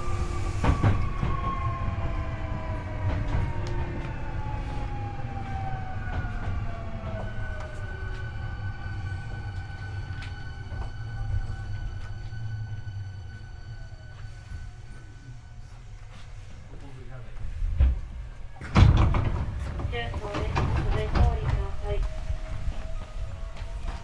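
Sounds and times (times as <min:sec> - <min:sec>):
train traction motors whining: 0:00.0 - 0:17.4
wheels rumbling on rail: 0:00.0 - 0:24.0.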